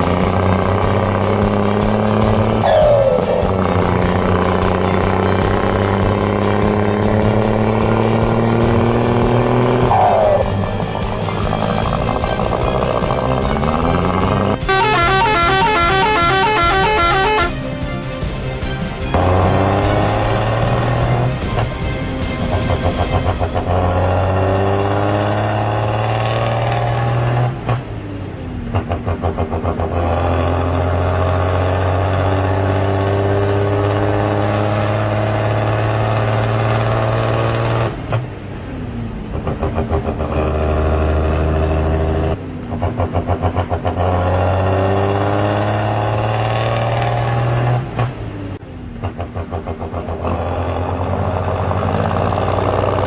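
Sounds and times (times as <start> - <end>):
engine chugging: 0.0 - 53.0
heavy vehicle engine running: 0.0 - 53.0.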